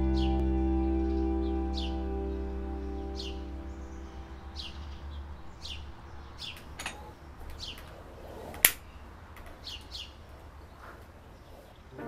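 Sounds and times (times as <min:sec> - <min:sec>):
low steady hum: 0:00.0 - 0:07.2
songbird chirping: 0:00.0 - 0:12.0.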